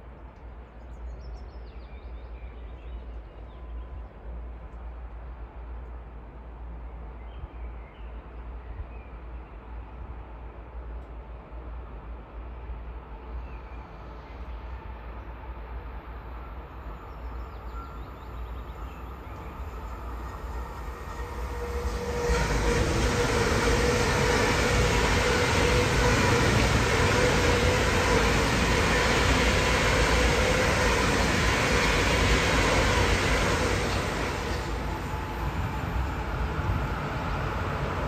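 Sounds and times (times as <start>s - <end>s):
train wheels rushing on rail: 10.0s - 38.0s.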